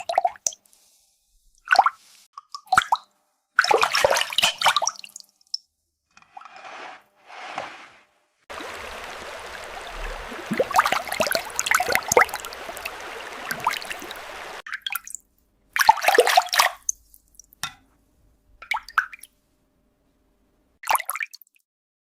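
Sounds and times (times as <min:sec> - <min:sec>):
water splashing and dripping: 0:00.0 - 0:00.7, 0:01.5 - 0:05.6, 0:08.5 - 0:15.2, 0:15.8 - 0:17.6
stream of running water: 0:08.5 - 0:14.6.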